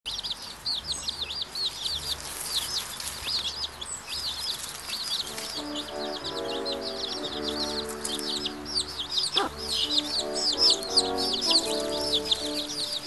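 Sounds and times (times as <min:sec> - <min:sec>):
small birds chirping: 0:00.1 - 0:13.0
steady musical tones: 0:05.2 - 0:13.0.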